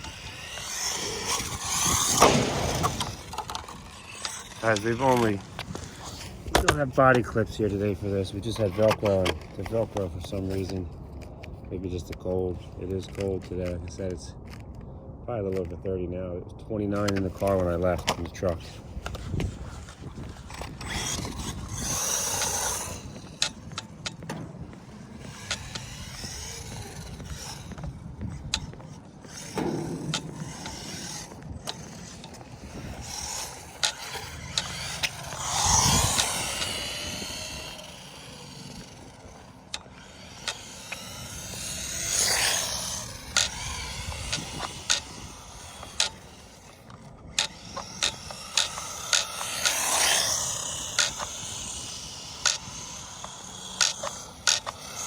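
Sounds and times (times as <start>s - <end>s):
toy truck electric motor whining: 0.0s - 14.7s, 16.9s - 55.0s
sharp clicks and knocks: 19.0s - 55.0s.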